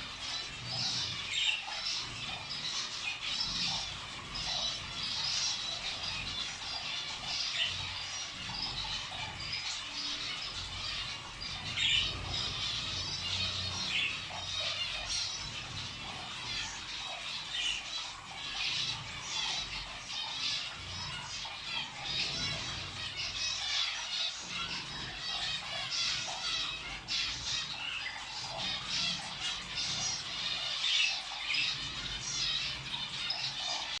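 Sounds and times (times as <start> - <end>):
caged birds chirping and squawking: 0.0 - 34.0.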